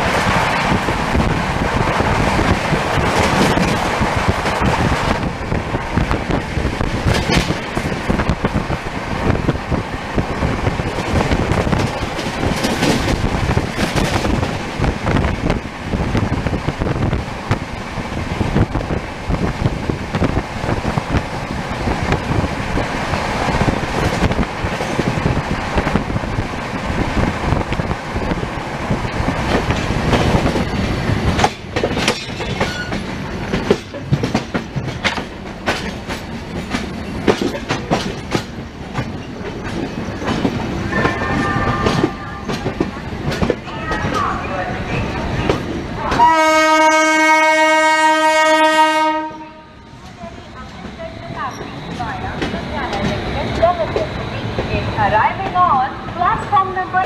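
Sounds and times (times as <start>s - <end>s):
wind buffeting the microphone: 0.0s - 46.3s
train rattling on the track: 0.0s - 57.0s.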